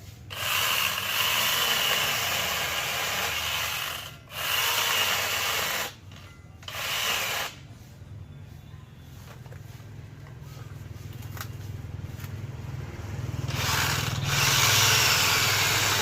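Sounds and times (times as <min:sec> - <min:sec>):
angle grinder with chainsaw adapter: 0:00.0 - 0:07.7, 0:13.3 - 0:16.0.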